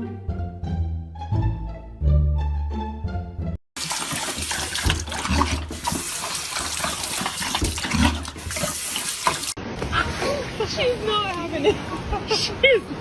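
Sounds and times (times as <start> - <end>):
water running and splashing: 3.8 - 9.6.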